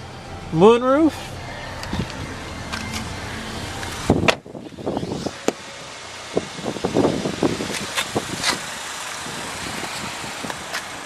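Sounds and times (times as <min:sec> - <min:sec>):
wind blowing across microphone: 0:06.3 - 0:11.0.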